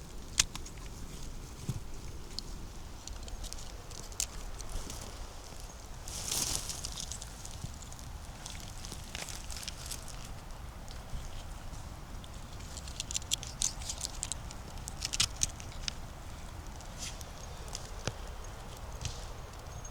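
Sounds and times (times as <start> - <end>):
footsteps on dry leaves and twigs: 1.3 - 16.2.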